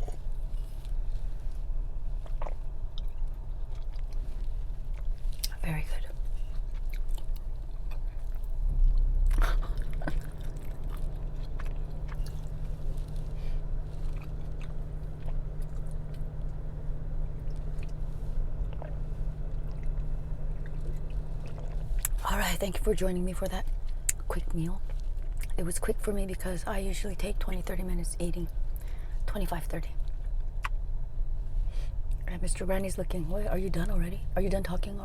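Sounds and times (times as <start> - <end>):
steady low hum: 0.0 - 35.0
person chewing food: 1.6 - 5.5, 6.3 - 22.2.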